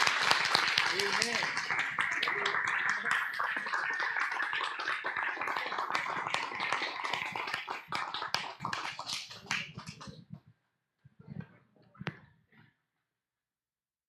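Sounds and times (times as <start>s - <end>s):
congregation applauding: 0.0s - 10.1s.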